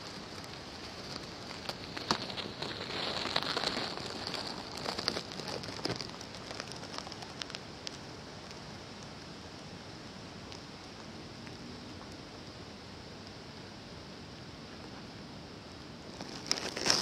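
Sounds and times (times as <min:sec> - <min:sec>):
rain pattering: 0:00.0 - 0:13.4, 0:16.1 - 0:17.0
sharp raindrop clicks: 0:00.3 - 0:09.3.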